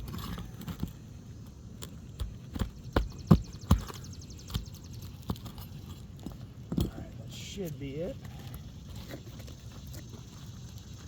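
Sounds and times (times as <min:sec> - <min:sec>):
scraping rattle: 0:00.0 - 0:01.0
hatchet knocking under shingles: 0:01.8 - 0:07.0.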